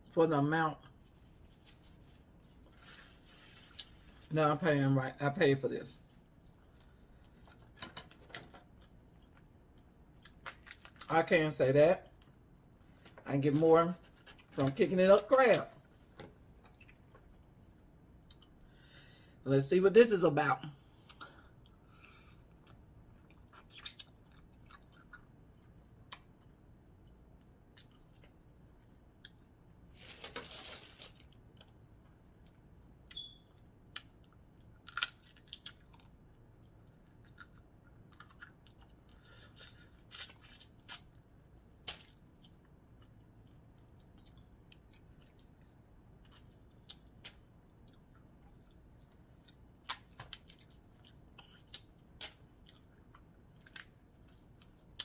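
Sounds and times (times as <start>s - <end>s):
chewing crab legs: 6.2s - 11.1s, 16.4s - 18.6s, 20.9s - 30.2s, 33.8s - 55.0s.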